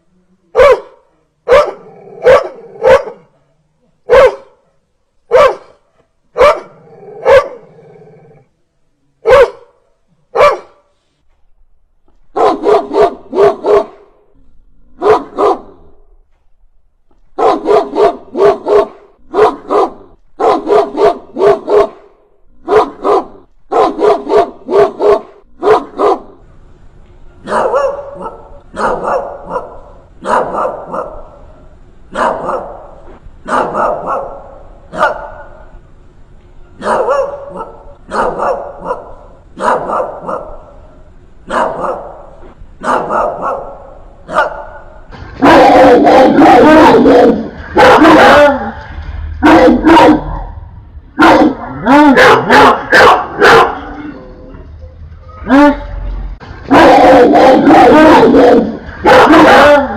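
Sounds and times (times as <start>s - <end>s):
dog barking fiercely: 0.6s - 3.3s, 4.1s - 4.6s, 5.3s - 7.7s, 9.2s - 10.8s, 12.3s - 14.1s, 15.0s - 15.9s, 17.4s - 26.4s, 27.4s - 31.4s, 32.1s - 35.6s, 36.8s - 40.8s, 41.4s - 44.8s, 45.4s - 48.8s, 49.4s - 50.5s, 51.2s - 54.1s, 56.7s - 59.9s.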